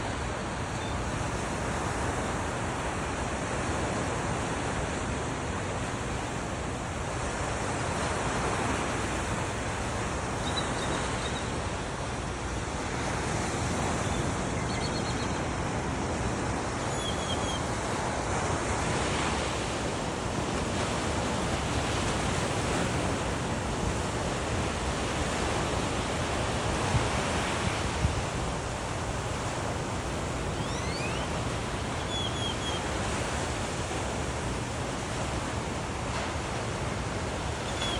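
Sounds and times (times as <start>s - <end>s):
ocean surf washing onto beach: 0.0s - 37.9s
short high bird chirps: 30.6s - 31.3s.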